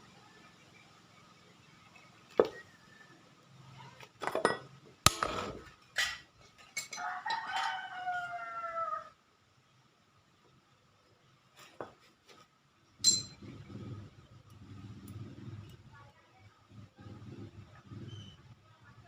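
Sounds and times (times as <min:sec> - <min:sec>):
long crowing call: 0:07.0 - 0:09.2
sharp knocks and clinks: 0:13.0 - 0:13.5.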